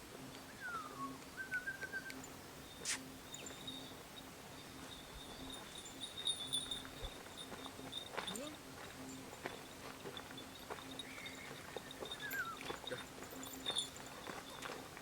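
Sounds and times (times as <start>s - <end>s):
faint high steady tone: 0.0s - 15.0s
bird calling: 10.9s - 13.0s.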